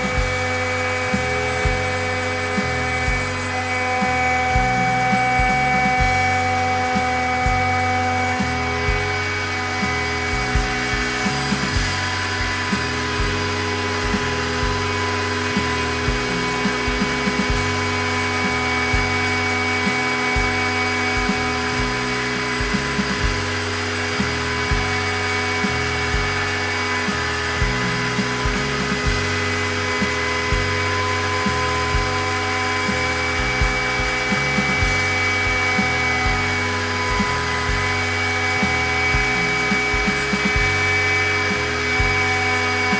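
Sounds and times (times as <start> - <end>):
background music with bass line: 0.0 - 42.9
router spindle whine: 0.0 - 42.9.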